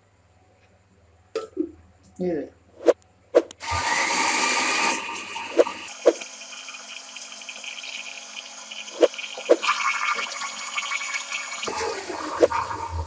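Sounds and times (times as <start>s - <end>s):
electric blender whirring: 3.6s - 13.0s.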